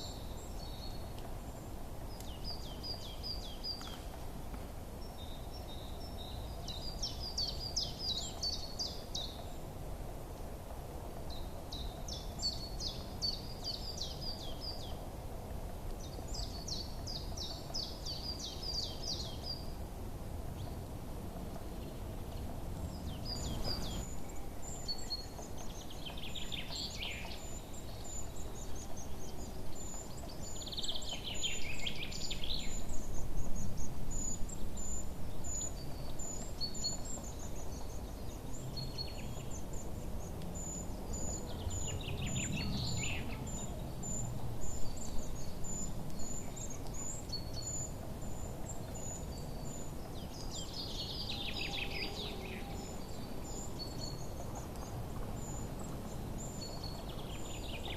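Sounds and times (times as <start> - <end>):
songbirds chirping: 0.0 - 57.9
descending trilled bird song: 22.3 - 39.9, 40.6 - 54.4.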